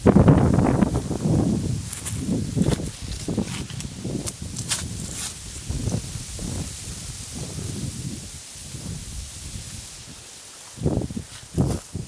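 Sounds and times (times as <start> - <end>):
rustling crackles: 0.0 - 12.0
wind buffeting microphone: 0.0 - 12.0.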